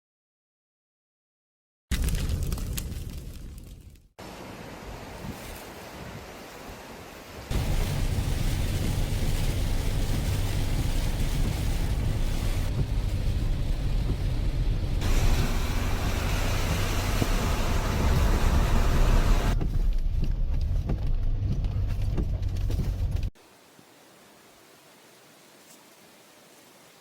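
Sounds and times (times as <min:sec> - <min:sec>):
stream rushing: 0:04.2 - 0:12.7, 0:15.0 - 0:19.6, 0:23.4 - 0:27.0
heavy rain: 0:04.2 - 0:19.6
faint hiss: 0:23.4 - 0:27.0.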